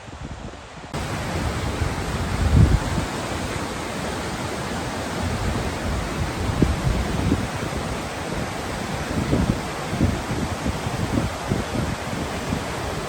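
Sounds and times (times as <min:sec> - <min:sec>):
waterfall rushing: 0:00.0 - 0:13.0
wind buffeting microphone: 0:00.0 - 0:13.0.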